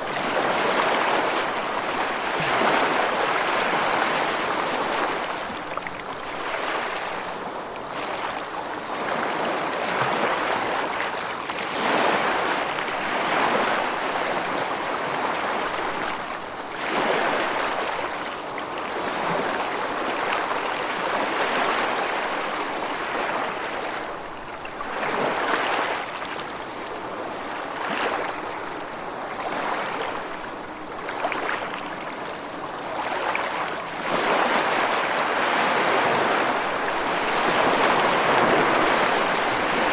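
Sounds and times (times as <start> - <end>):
rushing water like waves: 0.0 - 39.9.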